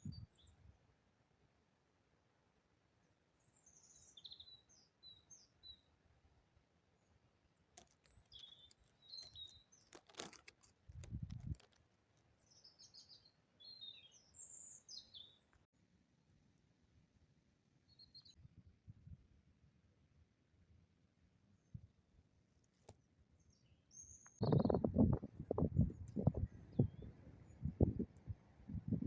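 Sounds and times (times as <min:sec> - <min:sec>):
small birds twittering: 0:03.4 - 0:05.9, 0:08.0 - 0:10.3, 0:12.4 - 0:15.5, 0:23.4 - 0:28.1.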